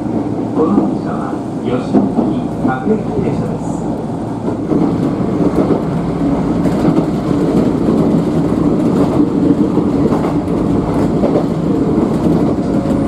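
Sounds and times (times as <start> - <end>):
wheels rumbling on rail: 0.0 - 13.0.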